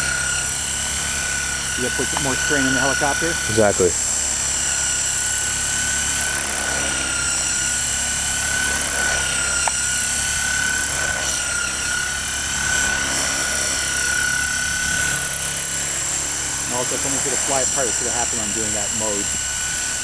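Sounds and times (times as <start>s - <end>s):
toy helicopter rotor whine: 0.0s - 20.0s.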